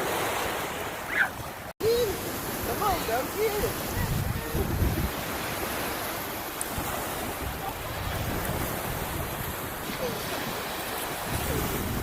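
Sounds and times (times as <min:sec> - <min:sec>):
surf washing onto beach: 0:00.0 - 0:12.0
wind on microphone: 0:02.6 - 0:12.0.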